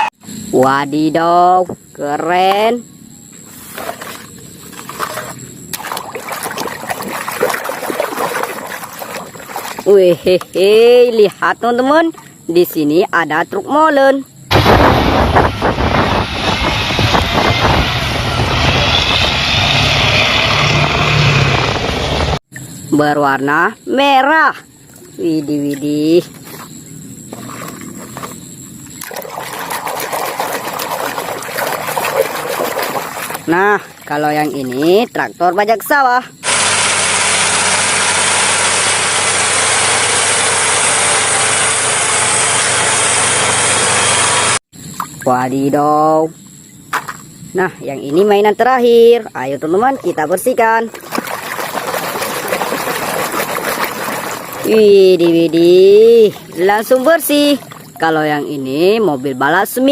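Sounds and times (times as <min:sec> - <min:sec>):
low motor hum: 0:14.5 - 0:22.8, 0:36.4 - 0:44.6
motor running: 0:36.4 - 0:44.6.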